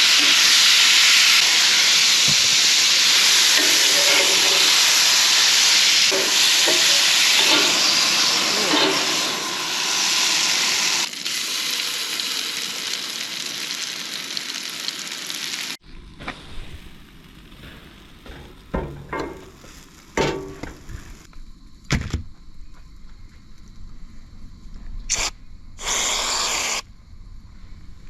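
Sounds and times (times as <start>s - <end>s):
pancakes sizzling: 0.0s - 21.3s.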